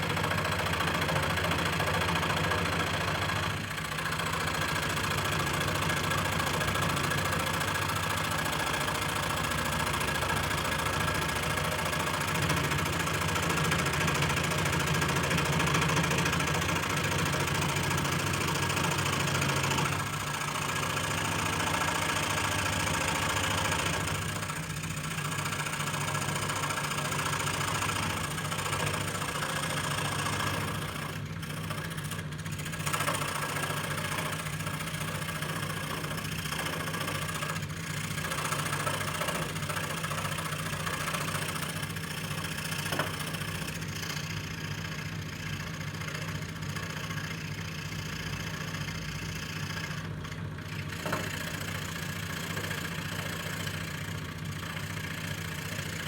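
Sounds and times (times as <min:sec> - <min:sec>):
electric scroll saw running: 0:00.0 - 0:56.0.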